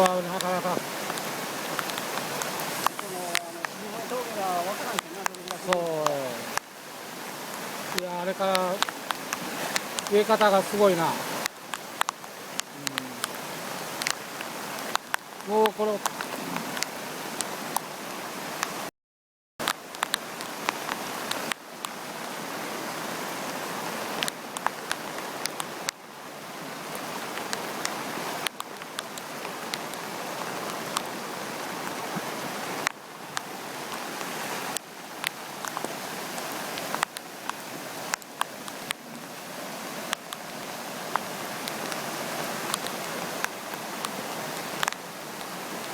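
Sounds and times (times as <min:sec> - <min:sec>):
rain falling: 0:00.0 - 0:18.9, 0:19.6 - 0:45.9
river rushing: 0:00.0 - 0:18.9, 0:19.6 - 0:45.9
sharp ticks: 0:04.9 - 0:06.6.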